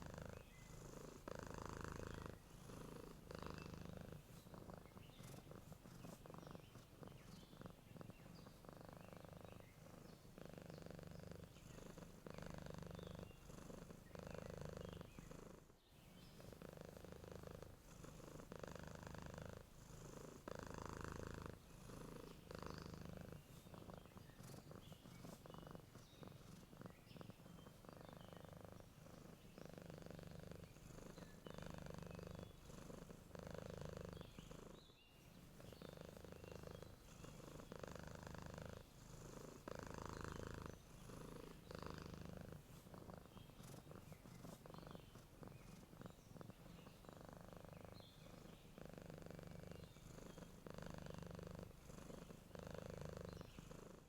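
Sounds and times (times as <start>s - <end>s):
cat purring: 0.0s - 54.0s
faint bird chirps: 0.0s - 54.0s.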